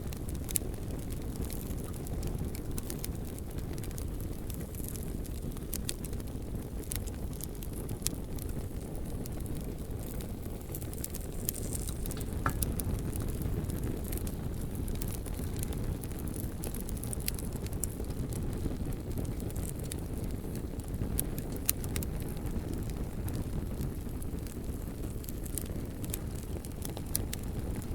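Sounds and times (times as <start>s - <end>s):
fire crackling and popping: 0.0s - 27.9s
flames rumbling: 0.0s - 27.9s.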